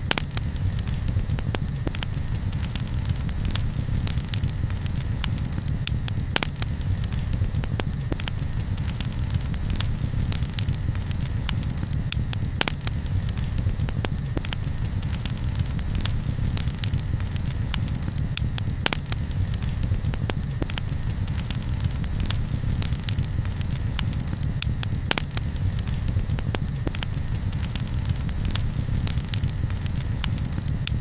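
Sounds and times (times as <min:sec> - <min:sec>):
campfire crackling: 0:00.0 - 0:31.0.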